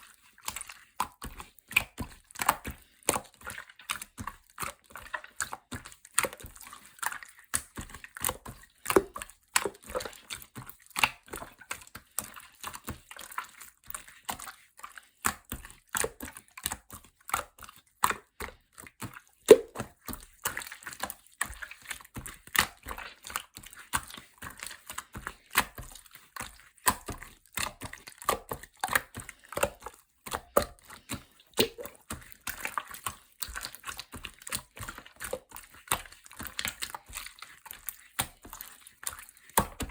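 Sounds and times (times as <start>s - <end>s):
slime wet clicks and pops: 19.5s - 20.6s, 26.8s - 32.6s.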